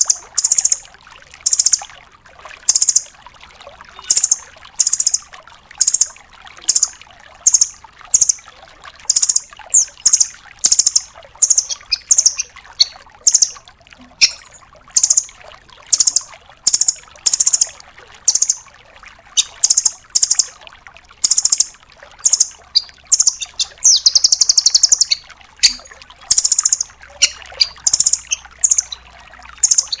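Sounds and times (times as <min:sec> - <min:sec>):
bird calling in rapid trills: 0:00.0 - 0:00.8, 0:01.4 - 0:01.9, 0:02.7 - 0:03.1, 0:03.9 - 0:06.1, 0:06.7 - 0:08.4, 0:09.1 - 0:13.6, 0:14.2 - 0:15.3, 0:15.9 - 0:18.6, 0:19.4 - 0:20.5, 0:21.2 - 0:30.0
faint trickle of water: 0:00.0 - 0:30.0.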